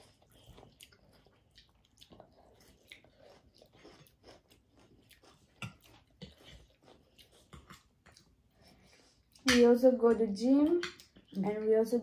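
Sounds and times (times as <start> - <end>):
chewing and biting food: 0.0 - 9.5.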